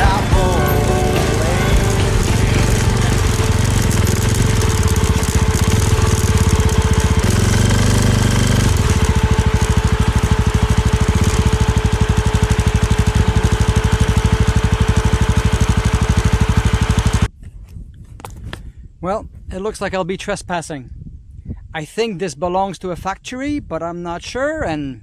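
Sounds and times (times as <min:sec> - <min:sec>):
motorcycle engine running: 0:00.0 - 0:17.3.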